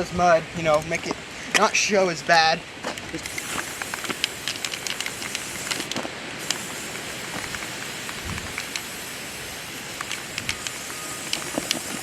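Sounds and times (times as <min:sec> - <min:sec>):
spray can hissing: 0:03.2 - 0:12.0
small clicks: 0:10.0 - 0:12.0.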